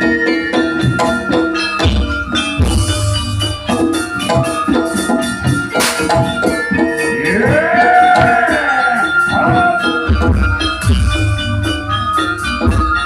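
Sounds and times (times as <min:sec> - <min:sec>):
fast percussion strokes: 0:00.0 - 0:13.0
bending melodic line: 0:03.1 - 0:13.0
steady held tones: 0:05.8 - 0:10.0.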